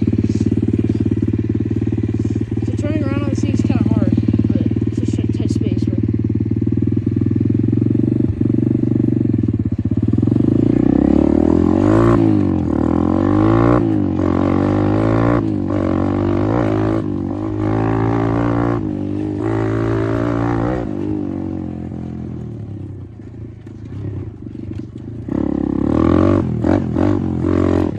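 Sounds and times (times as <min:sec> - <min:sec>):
dirt bike engine revving: 0:00.0 - 0:27.9.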